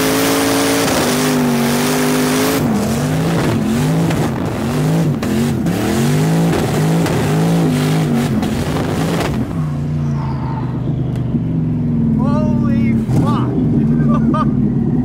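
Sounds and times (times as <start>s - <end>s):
car engine revving hard: 0.0s - 9.9s
tyre and wind noise: 2.6s - 10.1s.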